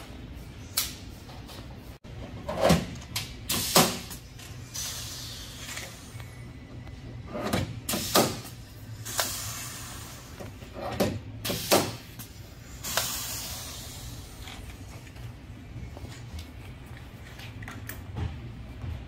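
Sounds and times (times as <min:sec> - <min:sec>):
steady low hum: 0:00.0 - 0:19.0
air hiss: 0:03.5 - 0:06.2, 0:07.9 - 0:10.4, 0:11.4 - 0:14.4.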